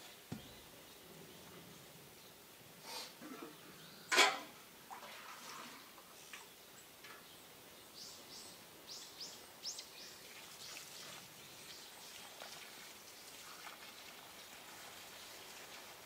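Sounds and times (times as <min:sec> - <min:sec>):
bird chirping: 0:00.0 - 0:02.4
faint outdoor background noise: 0:00.0 - 0:16.0.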